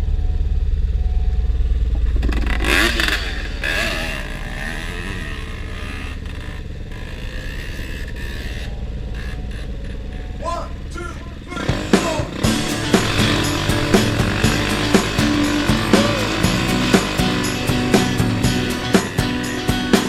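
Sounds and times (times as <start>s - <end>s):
motorcycle engine running: 0.0s - 20.0s
person speaking: 10.4s - 13.2s.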